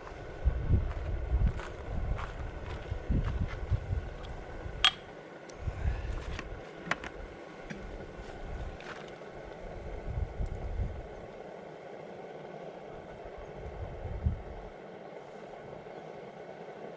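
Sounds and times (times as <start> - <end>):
diesel engine running unevenly: 5.6 - 16.9.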